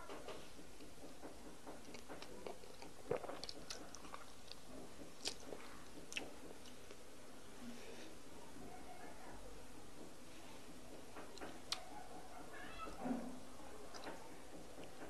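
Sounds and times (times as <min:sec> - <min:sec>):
person chewing wet mouth sounds: 0:01.8 - 0:07.0, 0:13.9 - 0:15.0.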